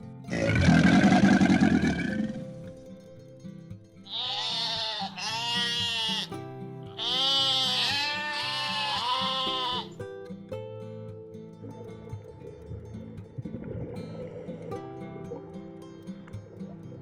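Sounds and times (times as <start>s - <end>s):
background music: 0.0s - 17.0s
animal calling: 4.1s - 10.0s.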